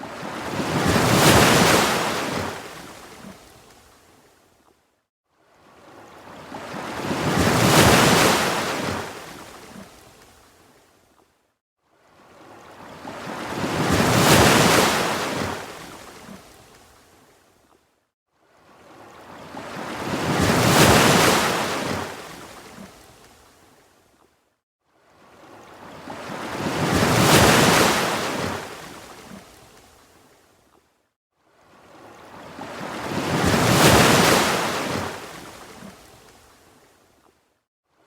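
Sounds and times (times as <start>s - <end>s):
ocean waves washing in: 31.8s - 36.3s.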